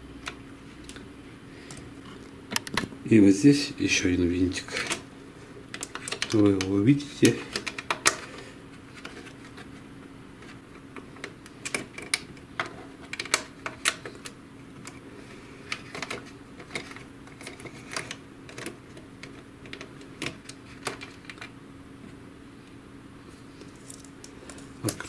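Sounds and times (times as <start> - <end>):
steady low hum: 0.0 - 25.0
screwdriver clicking on plastic parts: 5.7 - 8.3, 11.0 - 15.0.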